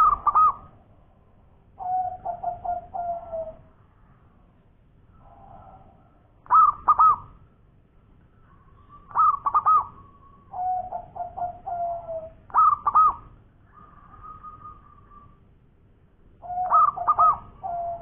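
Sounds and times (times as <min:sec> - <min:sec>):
dove cooing: 0:00.0 - 0:00.8, 0:01.8 - 0:03.7, 0:05.2 - 0:07.4, 0:08.9 - 0:15.4, 0:16.4 - 0:18.0.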